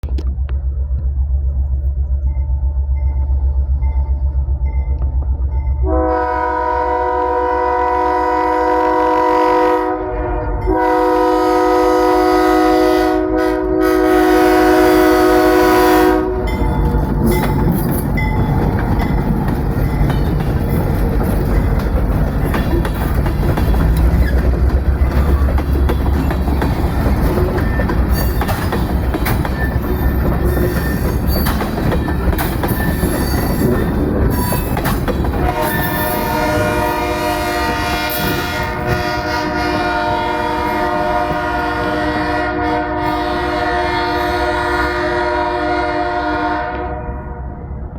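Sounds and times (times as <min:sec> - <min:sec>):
diesel engine rumbling: 0:00.0 - 0:07.3, 0:13.6 - 0:42.3
rail noise: 0:00.0 - 0:47.9
locomotive air horn blasts: 0:05.8 - 0:16.8, 0:35.4 - 0:47.6
wheels clicking over rail joints: 0:16.3 - 0:39.6.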